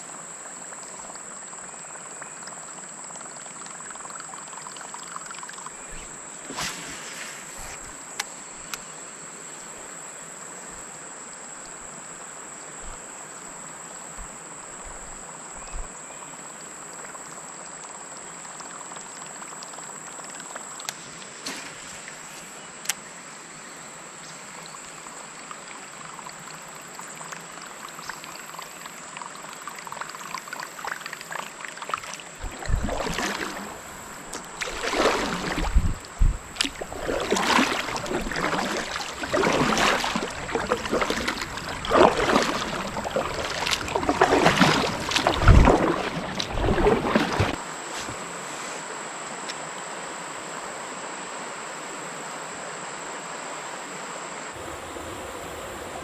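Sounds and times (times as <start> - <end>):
moving water: 0.0 - 49.7, 54.6 - 56.0
kayak paddle splashing in water: 5.4 - 8.9, 21.2 - 22.7, 30.2 - 48.6, 54.6 - 56.0
paddle knocks: 32.4 - 48.2.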